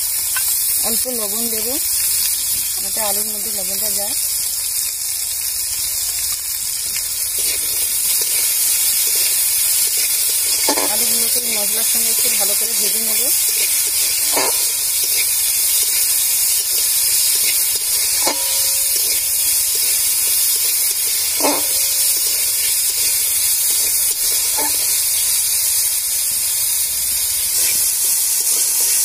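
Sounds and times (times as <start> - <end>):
potatoes sizzling in oil: 0.0 - 29.0
metal spatula clinking on pan: 10.6 - 11.3, 13.5 - 15.3, 17.4 - 19.2, 21.4 - 22.1, 24.5 - 24.9.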